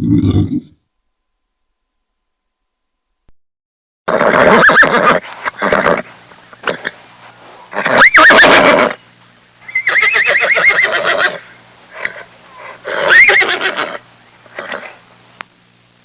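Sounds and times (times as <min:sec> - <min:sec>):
animal calling with quavering pitch: 0:07.7 - 0:09.0, 0:09.6 - 0:15.0.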